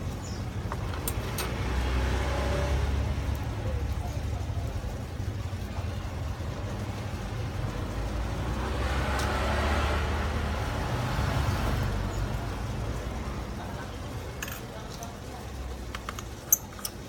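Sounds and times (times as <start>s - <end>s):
road vehicle passing: 0.0s - 15.9s
low rumble of traffic: 0.0s - 17.0s.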